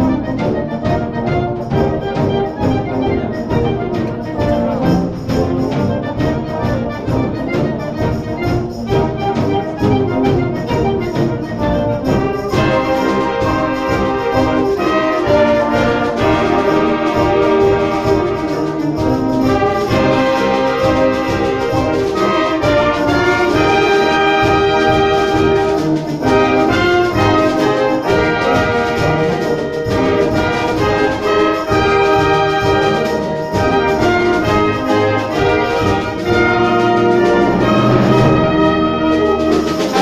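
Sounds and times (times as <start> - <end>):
brass instruments: 0.0 - 40.0
concert band playing: 0.0 - 40.0.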